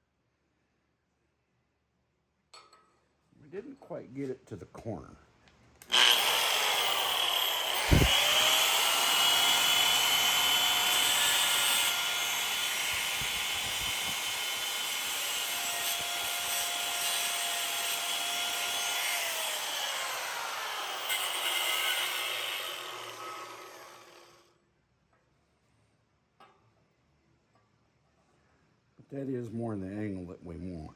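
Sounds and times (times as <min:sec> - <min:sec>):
angle grinder cutting metal: 0:05.8 - 0:24.4.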